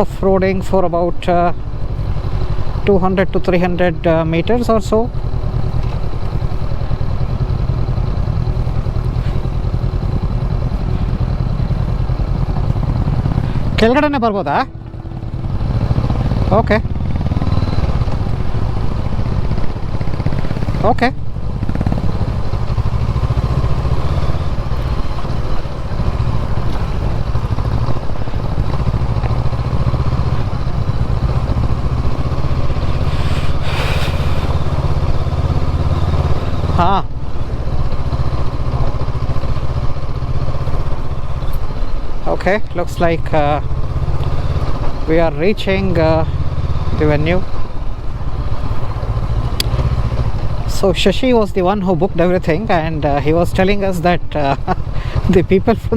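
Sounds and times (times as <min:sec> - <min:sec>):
motorcycle engine at low revs: 0:00.0 - 0:55.9
brief rush of noise: 0:33.0 - 0:34.7.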